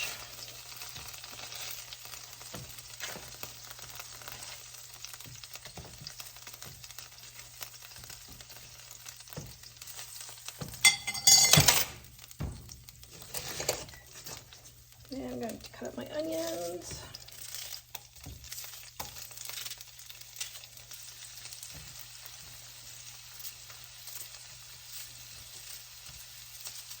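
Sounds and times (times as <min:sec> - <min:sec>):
chicken sizzling in a frying pan: 0:00.0 - 0:27.0
utensil clattering against pan: 0:10.6 - 0:14.0.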